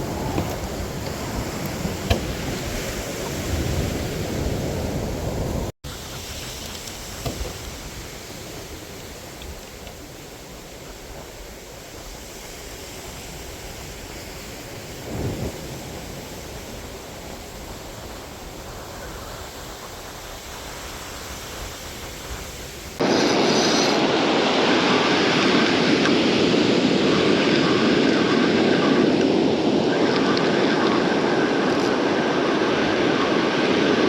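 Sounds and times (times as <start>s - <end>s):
wind buffeting microphone: 0.0s - 12.5s
surf: 0.0s - 34.0s
wind: 0.0s - 34.0s.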